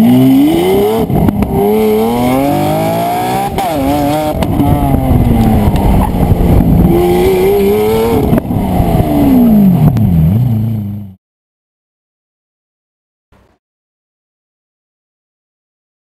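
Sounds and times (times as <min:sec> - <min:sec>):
exhaust popping and backfiring: 0:00.0 - 0:11.1
car engine revving: 0:00.0 - 0:11.2.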